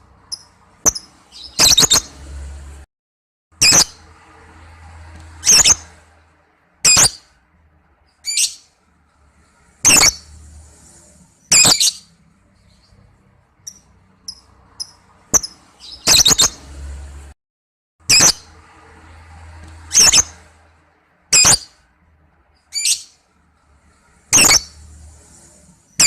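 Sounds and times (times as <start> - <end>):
lovebird calling: 0.3 - 2.2, 9.8 - 10.3, 11.5 - 12.0, 13.6 - 16.6, 24.3 - 24.8.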